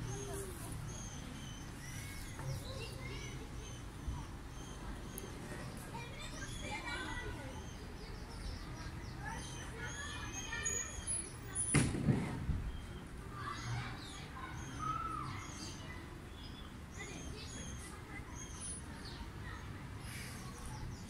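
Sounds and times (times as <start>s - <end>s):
small birds twittering: 0.0s - 21.0s
low thump and rustle: 11.7s - 12.8s.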